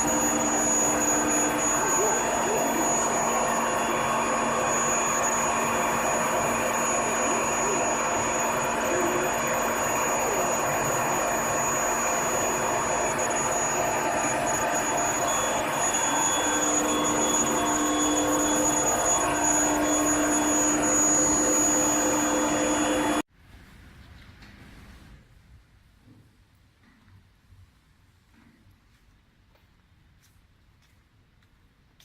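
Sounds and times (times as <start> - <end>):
furnace blower rushing: 0.0 - 23.2
high-pitched machine whines: 0.0 - 23.3.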